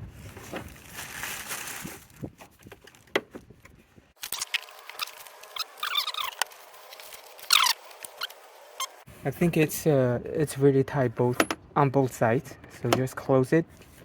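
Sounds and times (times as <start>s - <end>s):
plastic cover scraping: 4.2s - 8.9s
plastic squeaks: 4.2s - 9.0s.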